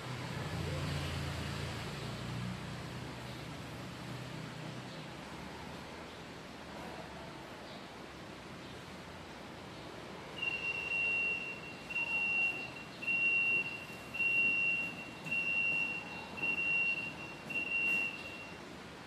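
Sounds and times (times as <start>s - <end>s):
electronic beeper long beeps: 10.4s - 18.6s.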